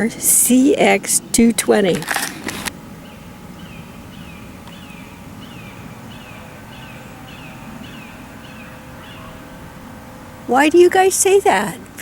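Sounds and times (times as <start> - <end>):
bird calling downward notes: 2.8 - 12.0.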